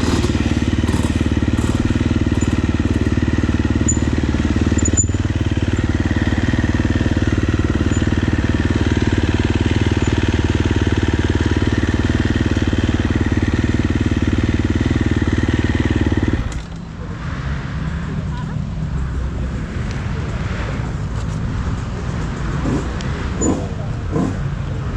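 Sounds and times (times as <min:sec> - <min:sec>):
motocross bike engine running: 0:00.0 - 0:17.7.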